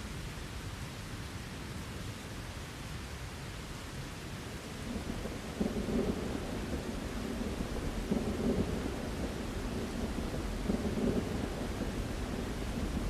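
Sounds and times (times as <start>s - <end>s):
steady rain: 0.0s - 13.0s
low rolling thunder: 4.9s - 13.0s.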